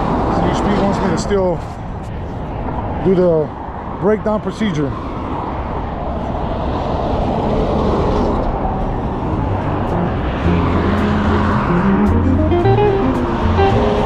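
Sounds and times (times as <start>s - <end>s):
road and wind noise: 0.0s - 14.0s
low held music notes: 9.2s - 14.0s.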